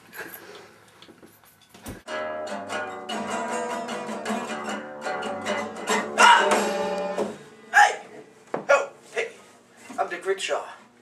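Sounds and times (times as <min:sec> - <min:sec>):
guitar music: 0:02.1 - 0:09.5.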